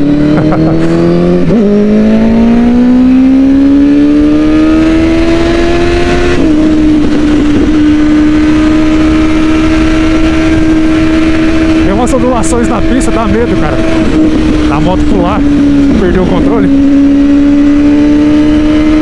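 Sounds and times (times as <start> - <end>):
motorcycle engine accelerating: 0.0 - 19.0
constant low rush: 5.3 - 17.4.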